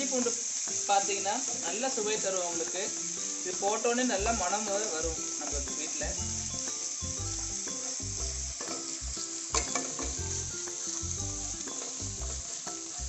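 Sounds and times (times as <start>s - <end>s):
paste sizzling in hot oil: 0.0s - 13.0s
spatula stirring in pan: 0.0s - 13.0s
spatula tapping pan: 6.6s - 13.0s.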